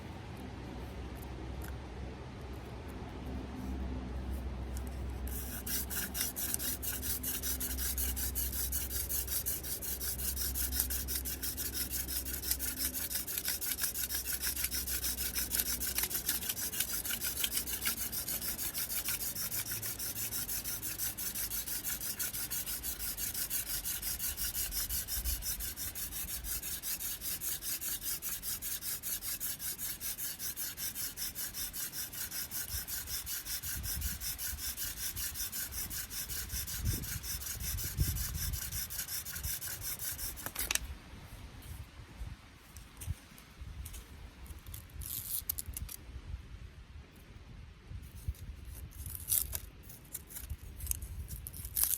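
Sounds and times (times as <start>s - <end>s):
hand drill scraping into wood: 4.8s - 40.9s, 48.4s - 51.9s.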